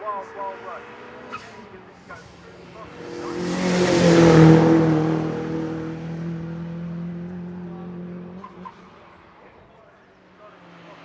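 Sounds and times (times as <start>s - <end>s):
race car passing at full throttle: 0.0s - 9.4s.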